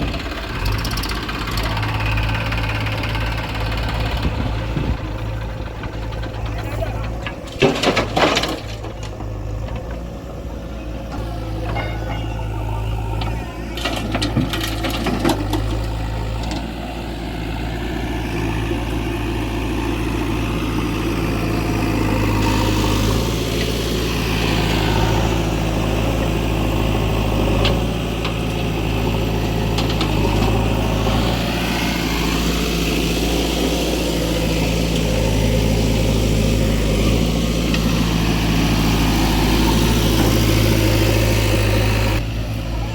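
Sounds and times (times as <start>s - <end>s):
diesel engines running: 0.0s - 42.9s
metal clanks: 4.3s - 10.2s, 11.1s - 16.6s.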